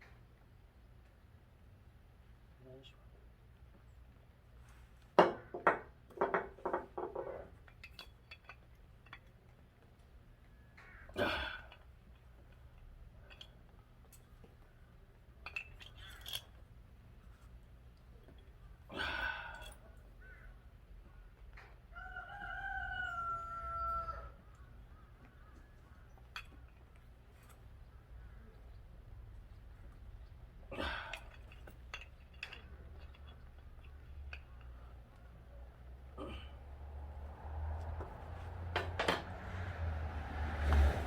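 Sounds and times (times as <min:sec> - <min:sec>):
rooster crowing: 0:21.9 - 0:24.6.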